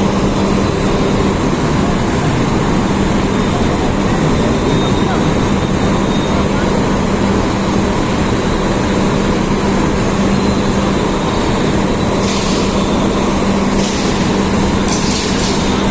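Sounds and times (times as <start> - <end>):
blast furnace roar: 0.0 - 15.9.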